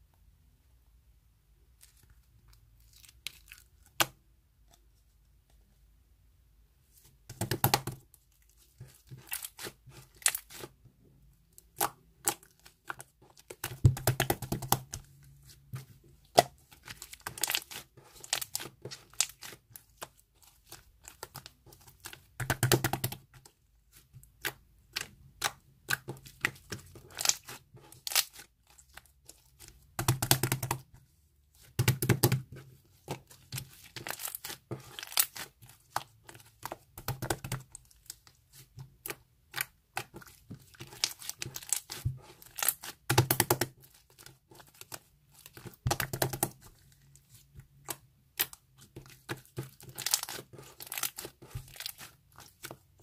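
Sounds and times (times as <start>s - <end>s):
crinkling and tearing: 46.4s - 53.0s.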